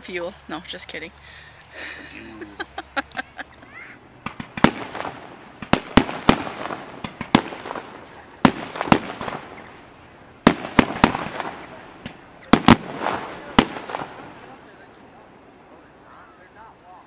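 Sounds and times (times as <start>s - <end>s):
fireworks bangs with echo: 4.2s - 15.8s.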